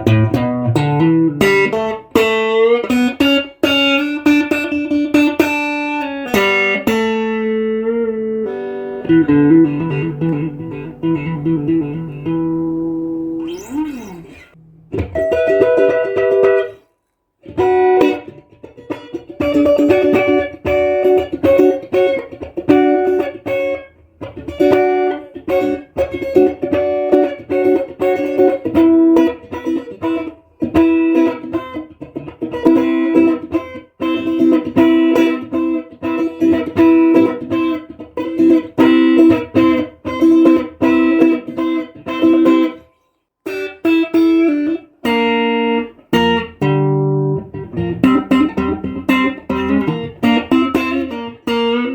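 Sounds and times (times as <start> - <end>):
electric guitar melodic phrases: 0.0 - 51.9.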